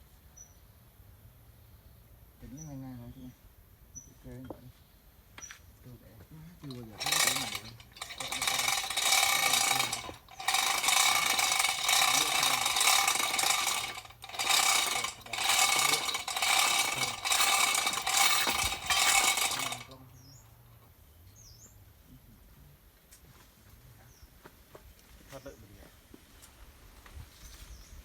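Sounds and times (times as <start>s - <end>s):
hammer drill rattling: 6.6s - 20.0s.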